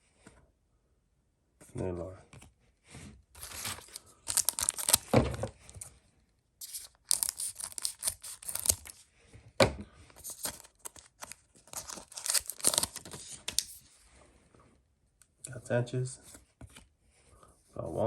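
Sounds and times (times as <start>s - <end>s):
wrapper tearing and crinkling: 3.4s - 5.9s, 6.6s - 9.0s, 10.2s - 13.7s.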